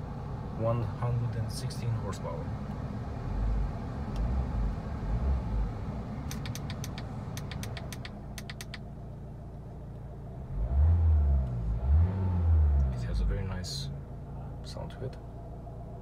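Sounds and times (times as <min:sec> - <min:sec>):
light clicks: 0:06.3 - 0:08.8.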